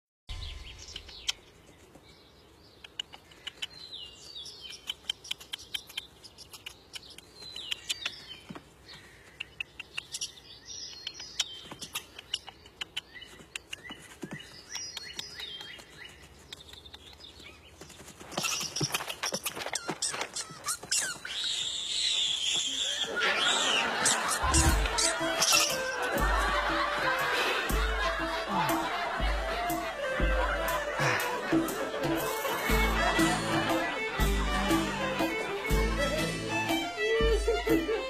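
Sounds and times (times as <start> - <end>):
birds chirping: 0.3 - 38.0
sharp ticks: 2.8 - 3.8, 4.6 - 8.2, 9.4 - 13.9.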